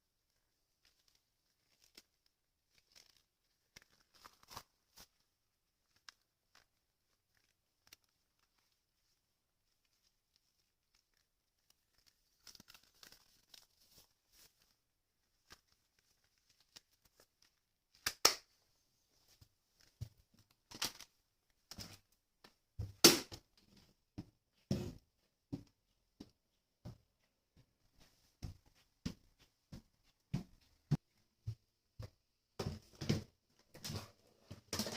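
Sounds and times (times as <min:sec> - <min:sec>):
faint crinkling and rustling: 0:00.1 - 0:22.8.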